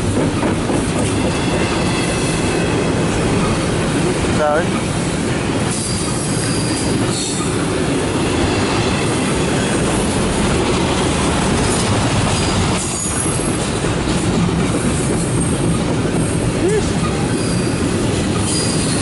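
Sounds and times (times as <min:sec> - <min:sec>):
train wheels rumbling on rail: 0:00.0 - 0:19.0
high wheel squeals: 0:05.7 - 0:07.6, 0:12.4 - 0:13.6, 0:17.2 - 0:19.0.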